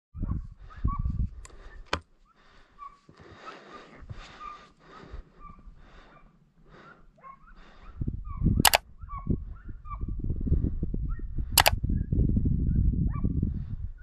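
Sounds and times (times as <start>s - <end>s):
hounds yelping: 2.2s - 10.2s
sharp click: 8.6s - 8.8s, 11.6s - 11.8s.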